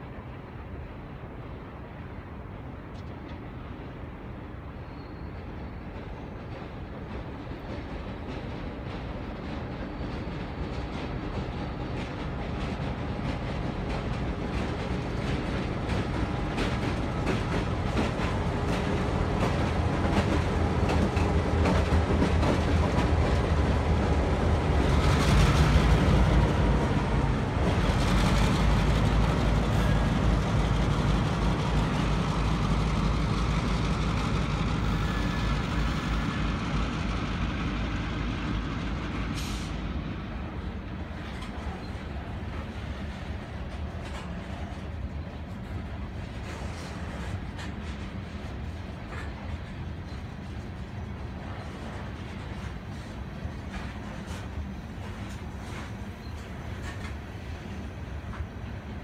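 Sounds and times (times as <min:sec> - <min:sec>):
diesel locomotive engines: 0:00.0 - 0:59.0
train wheels clicking on rails: 0:05.1 - 0:59.0.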